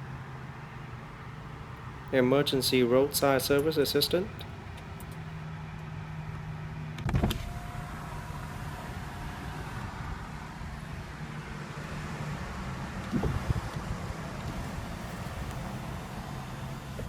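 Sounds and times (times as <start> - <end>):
car cabin hum: 0.0 - 5.4, 13.0 - 17.0.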